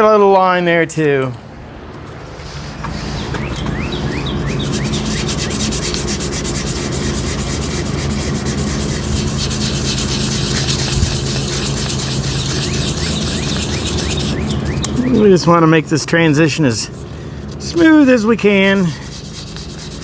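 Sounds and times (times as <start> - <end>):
low steady hum: 0.0 - 20.0
sandpaper rubbing metal: 2.3 - 3.4, 4.3 - 15.5, 16.4 - 20.0.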